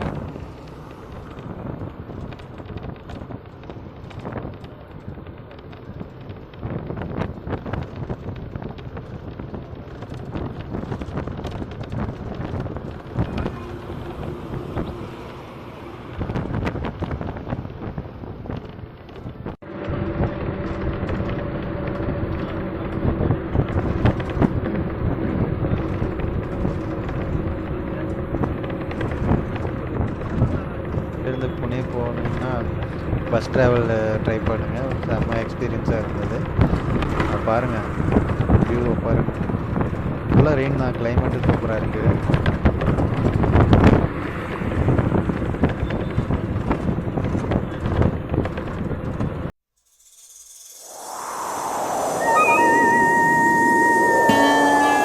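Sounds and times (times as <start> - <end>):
wind buffeting microphone: 0.0 - 31.3
bus engine drone: 0.0 - 48.0, 50.2 - 55.0
road rumble: 0.0 - 49.5.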